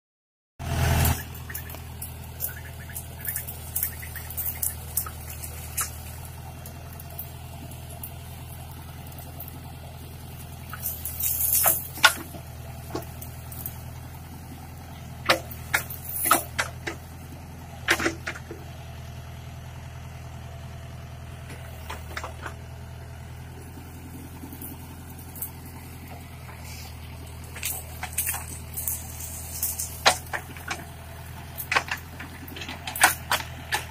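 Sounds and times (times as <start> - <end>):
backhoe engine running: 0.6 - 33.9.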